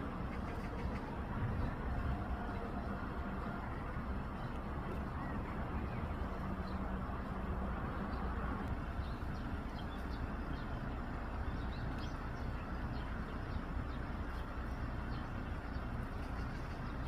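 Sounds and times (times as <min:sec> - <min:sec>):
steady rushing noise: 0:00.0 - 0:10.1.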